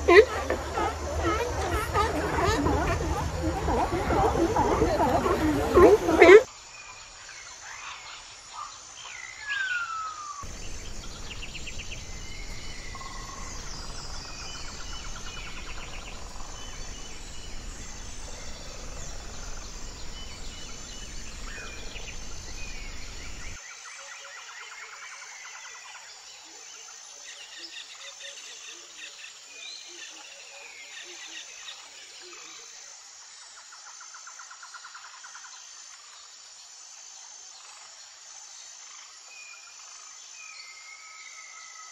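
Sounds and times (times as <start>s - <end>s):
birds chirping and trilling: 0.0s - 6.5s, 9.0s - 23.6s
pulsing insect trill: 0.0s - 6.5s, 10.4s - 23.6s
low rumbling noise: 10.5s - 23.6s.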